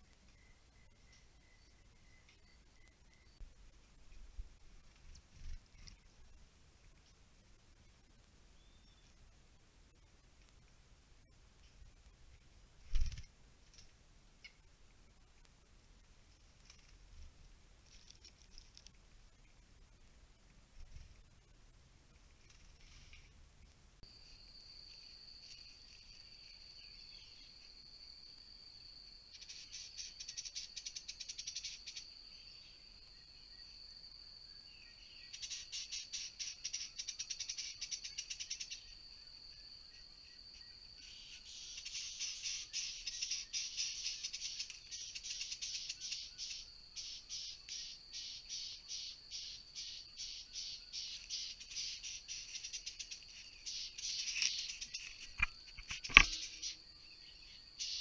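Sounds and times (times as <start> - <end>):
insects chirping rapidly: 24.1 - 58.0.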